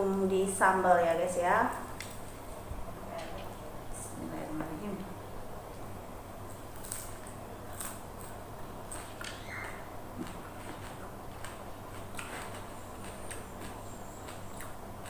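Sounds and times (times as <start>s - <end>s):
crunching and chewing: 6.5s - 15.0s.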